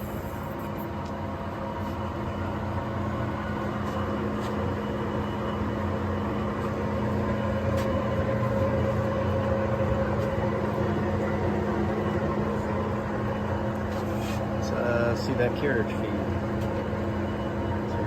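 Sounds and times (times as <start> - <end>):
lathe running: 0.0 - 18.0.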